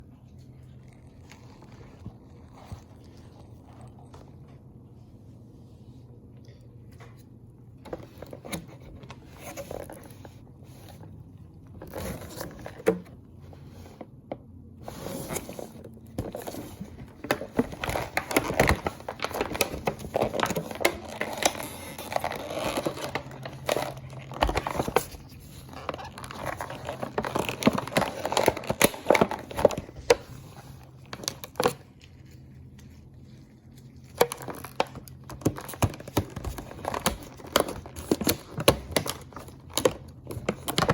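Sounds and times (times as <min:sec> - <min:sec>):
cardboard scraping and tearing: 0:11.8 - 0:13.0, 0:14.8 - 0:31.9, 0:34.1 - 0:40.9
plastic crinkling: 0:14.9 - 0:40.9.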